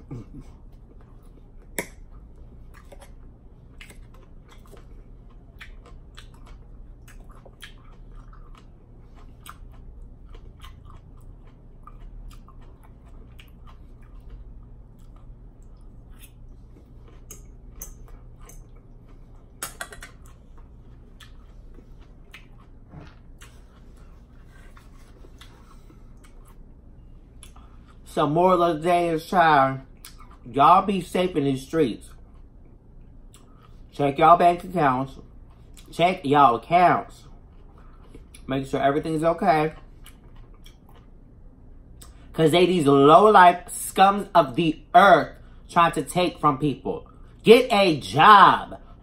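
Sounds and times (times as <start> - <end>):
chewing and crunching salad: 0.0 - 49.0.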